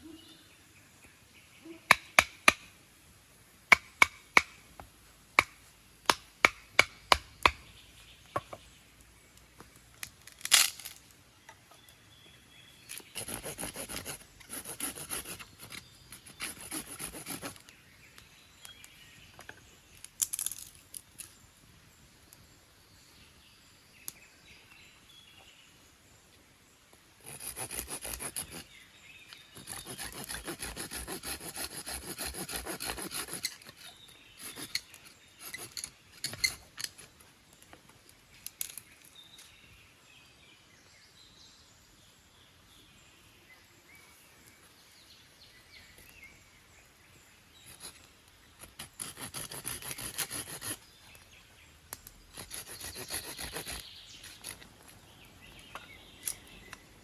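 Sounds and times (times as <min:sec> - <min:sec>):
fast repeated scraping strokes: 0:13.1 - 0:17.6, 0:27.2 - 0:28.7, 0:29.6 - 0:36.6, 0:48.7 - 0:50.9, 0:52.3 - 0:54.6.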